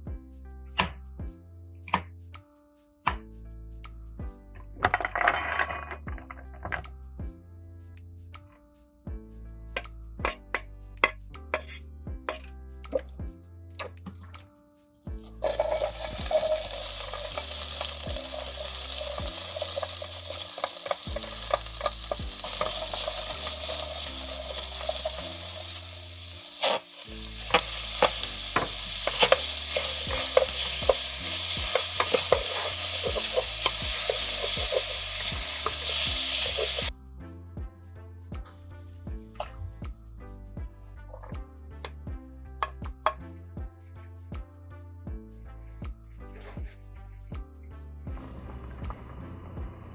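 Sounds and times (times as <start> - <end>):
food sizzling in hot oil: 15.4 - 36.9
utensil clicking and scraping: 15.4 - 36.9.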